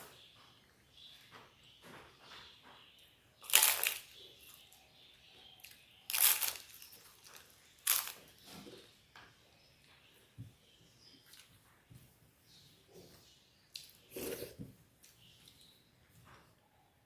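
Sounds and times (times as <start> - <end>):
crisp wafer crunching: 3.4 - 4.2, 5.6 - 8.3.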